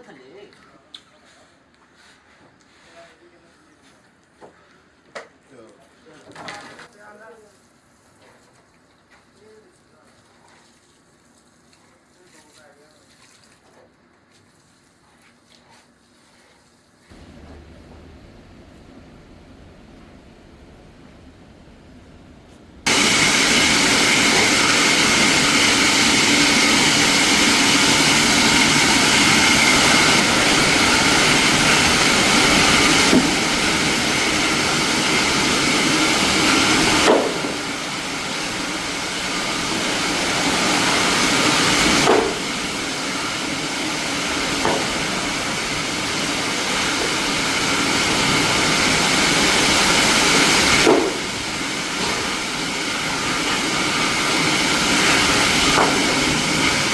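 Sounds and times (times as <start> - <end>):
factory machinery running: 17.1 - 56.9.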